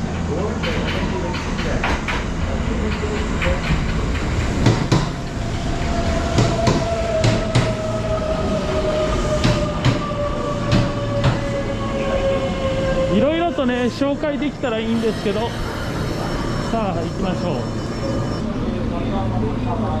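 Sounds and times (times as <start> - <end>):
train wheels clacking: 0.0 - 7.9, 9.2 - 11.5
train rumble: 0.0 - 20.0.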